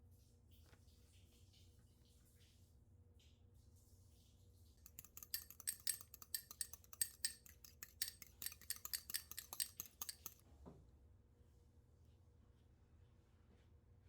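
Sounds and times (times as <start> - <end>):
utensil clinking against dish: 4.8 - 10.4.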